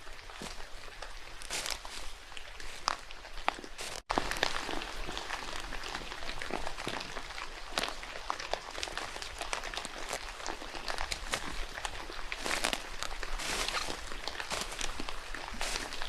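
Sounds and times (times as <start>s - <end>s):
rain falling in a forest: 0.0s - 16.0s.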